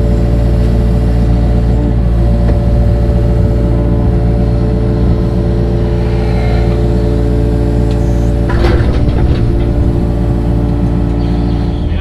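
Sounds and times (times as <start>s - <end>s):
engine running steadily: 0.0s - 12.0s
clattering and knocking: 8.4s - 11.2s.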